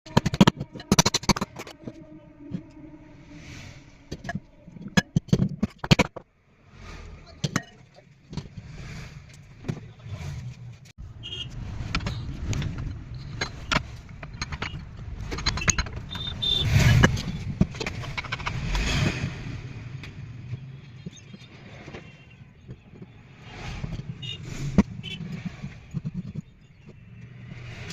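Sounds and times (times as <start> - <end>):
metal clicks and knocks: 0.1 - 2.8, 4.1 - 6.3, 11.9 - 18.8
low rumble: 0.5 - 5.3.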